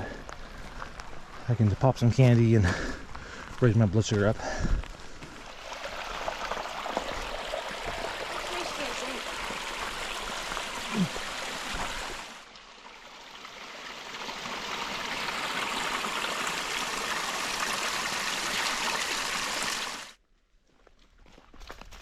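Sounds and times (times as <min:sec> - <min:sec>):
creek water rushing: 0:05.3 - 0:20.2.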